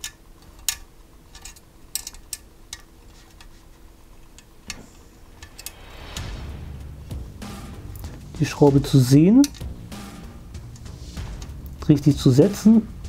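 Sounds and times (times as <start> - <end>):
small metal clicks and taps: 0.0 - 3.6
hands rustling handling model: 0.0 - 5.7.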